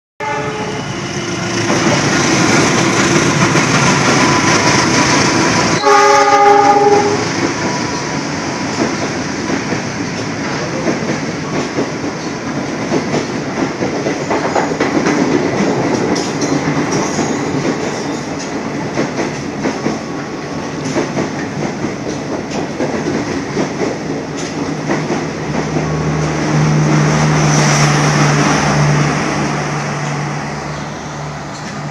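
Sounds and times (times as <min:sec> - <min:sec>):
train horn blast: 0:00.2 - 0:01.5, 0:05.7 - 0:07.3
train rumbling past: 0:00.2 - 0:31.9
wheels clattering on rails: 0:06.5 - 0:29.2.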